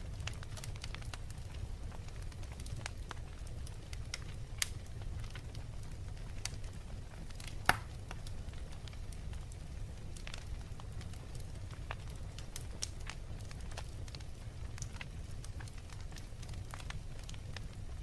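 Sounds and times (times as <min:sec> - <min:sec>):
wood fire crackling: 0:00.0 - 0:18.0
fire pop: 0:07.6 - 0:08.0.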